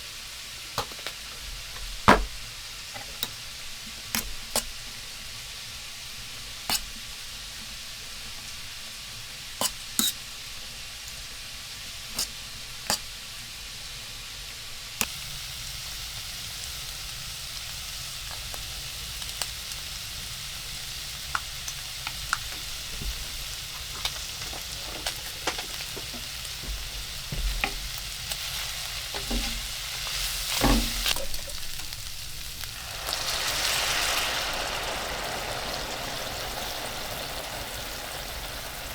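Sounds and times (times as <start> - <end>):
food sizzling in a pan: 0.0 - 38.9
sharp pops of frying: 0.7 - 8.8, 9.4 - 11.2, 12.0 - 13.6, 14.9 - 38.9
stirring knocks: 1.7 - 3.3, 22.4 - 28.4, 29.1 - 29.8.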